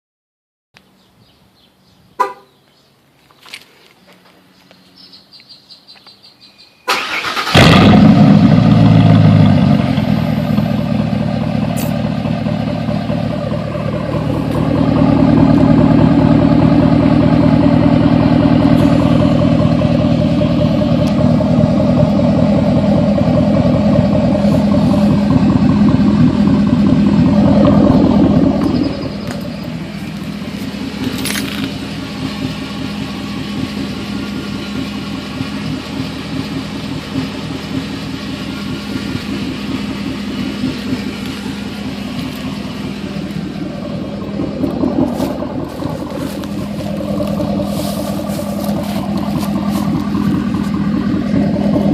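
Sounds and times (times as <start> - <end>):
engine cranking: 6.9 - 8.6, 27.0 - 51.9
engine running loudly: 6.9 - 51.9.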